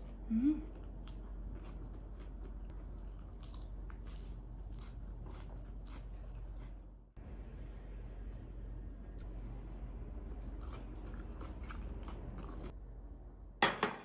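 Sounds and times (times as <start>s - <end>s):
person chewing crunchy food: 0.0s - 6.9s, 10.2s - 12.8s.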